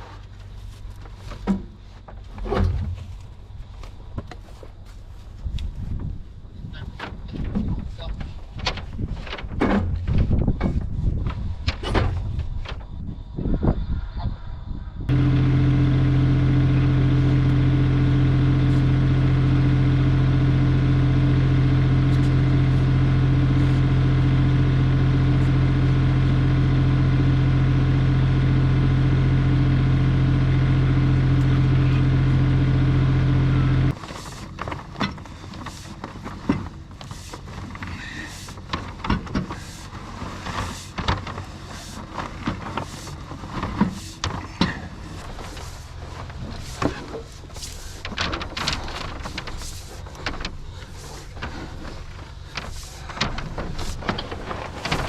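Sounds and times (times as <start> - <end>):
motor humming: 15.1 - 55.0.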